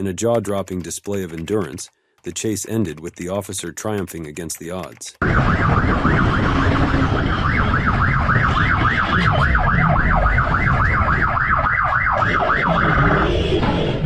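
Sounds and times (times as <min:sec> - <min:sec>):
police siren yelping: 0:05.2 - 0:14.0.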